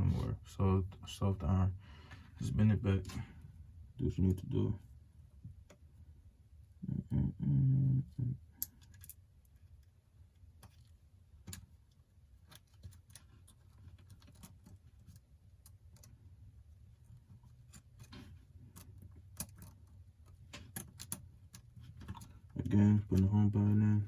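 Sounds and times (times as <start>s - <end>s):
low room hum: 0.0s - 24.0s
light clicks of small parts: 8.5s - 16.2s, 17.3s - 23.4s.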